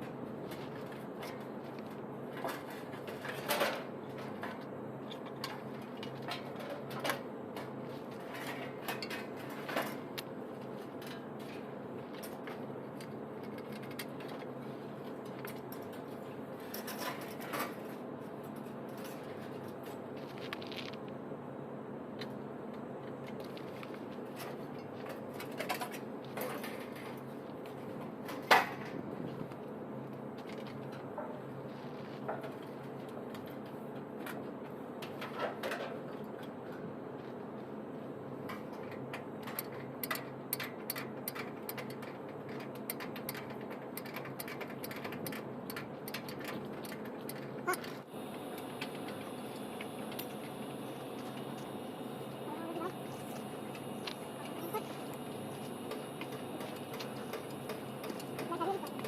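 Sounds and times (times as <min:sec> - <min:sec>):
tools clicking and knocking: 0:38.8 - 0:48.0
machine humming: 0:47.6 - 0:59.0.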